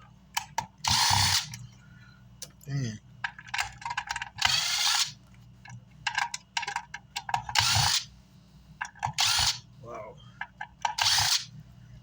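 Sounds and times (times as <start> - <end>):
short whirring bursts: 9.2 - 9.6, 11.0 - 11.5.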